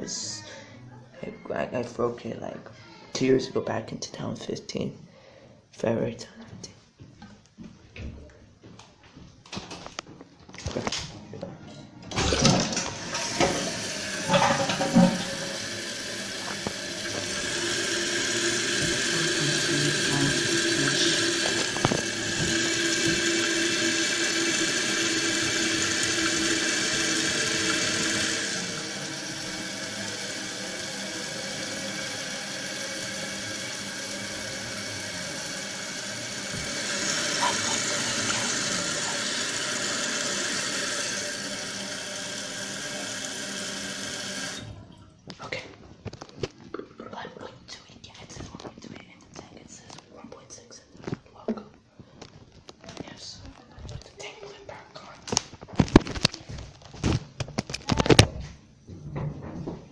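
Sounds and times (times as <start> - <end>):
toilet clunks: 12.1 - 30.9, 36.0 - 40.4
toilet flushing water rushing: 12.1 - 44.8.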